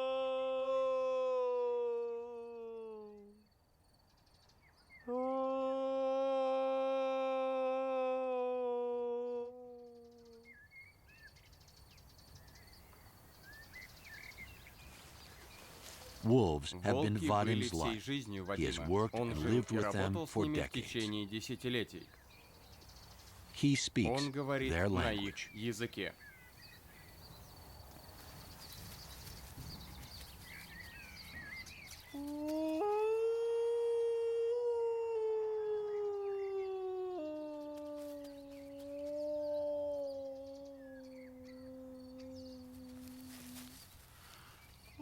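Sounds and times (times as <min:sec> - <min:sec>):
man imitating wolf howl: 0:00.0 - 0:03.4, 0:05.1 - 0:10.5, 0:16.3 - 0:21.3, 0:32.2 - 0:43.5
faint crickets chirping: 0:01.4 - 0:06.0, 0:09.5 - 0:33.0, 0:35.8 - 0:45.0
long steady howl: 0:32.2 - 0:43.8.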